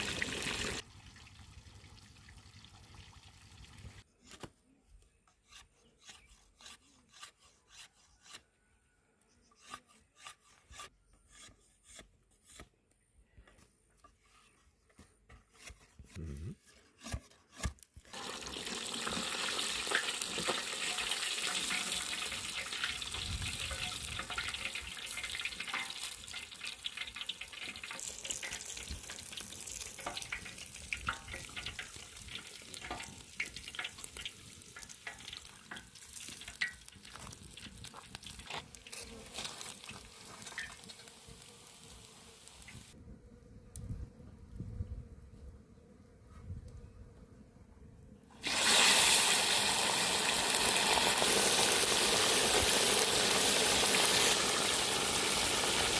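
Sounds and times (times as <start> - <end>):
fish sizzling in hot oil: 0.0 - 4.0, 18.1 - 43.0, 48.4 - 55.9.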